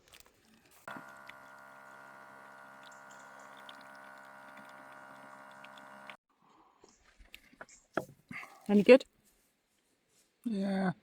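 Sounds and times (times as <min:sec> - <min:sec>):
faint steady hum: 0:00.9 - 0:06.2.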